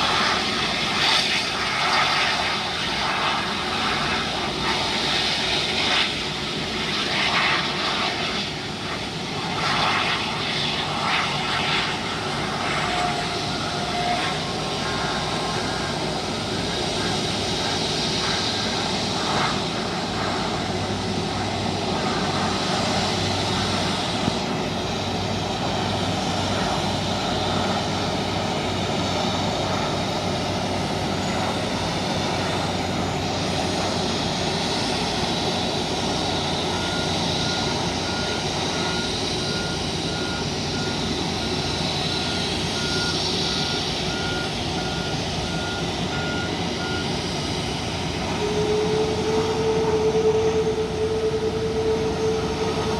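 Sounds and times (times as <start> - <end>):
jet engines running: 0.0 - 52.9
reversing beeper: 12.0 - 30.1, 33.5 - 52.9.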